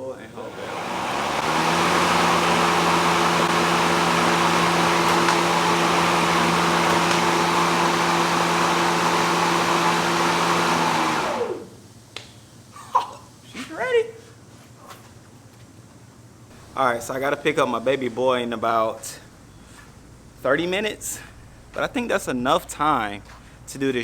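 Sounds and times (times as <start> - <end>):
electric lawn mower running: 0.3 - 11.7.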